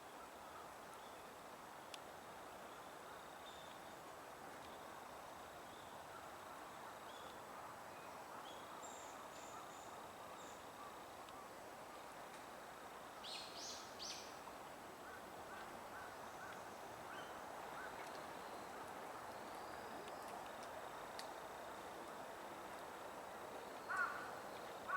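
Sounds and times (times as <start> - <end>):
wild birds calling: 23.9 - 24.3.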